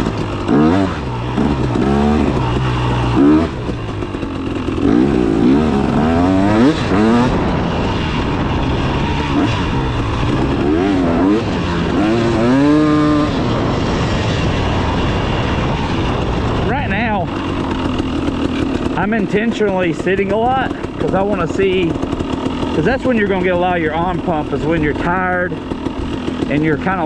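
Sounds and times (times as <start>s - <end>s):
two-stroke dirt bike revving: 0.0s - 27.0s.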